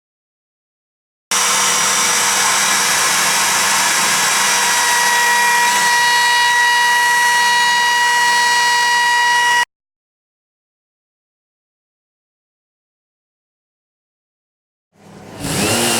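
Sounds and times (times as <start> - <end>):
electric power tool whining: 1.3 - 9.7, 15.4 - 15.9.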